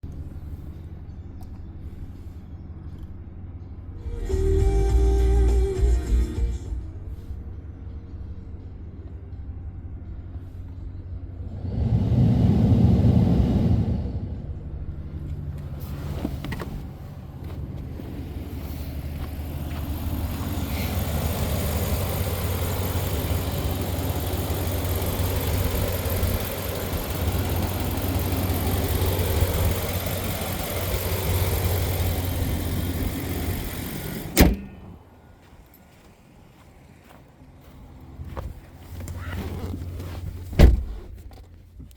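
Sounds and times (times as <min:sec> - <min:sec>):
pickup engine running and revving: 0:14.6 - 0:34.5.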